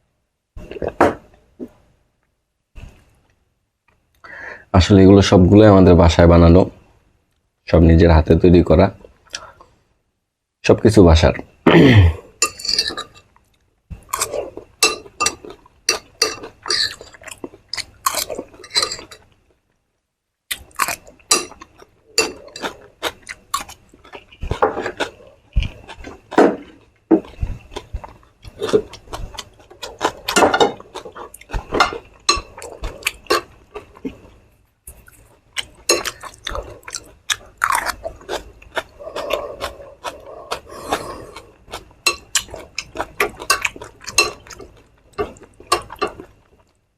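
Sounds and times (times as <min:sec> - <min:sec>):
person crunching and chewing food: 0:12.3 - 0:19.5, 0:20.5 - 0:46.9.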